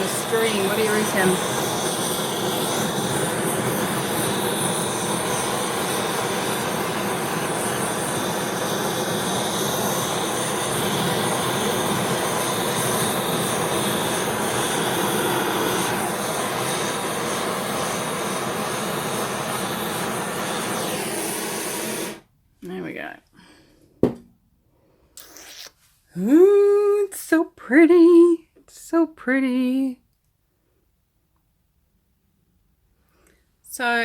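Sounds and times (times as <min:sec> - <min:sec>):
torch hissing: 0:00.0 - 0:22.3.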